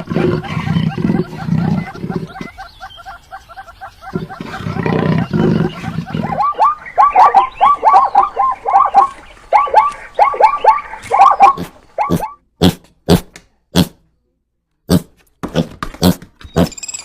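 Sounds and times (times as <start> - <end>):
animal high chirping calls: 0.2 - 12.4.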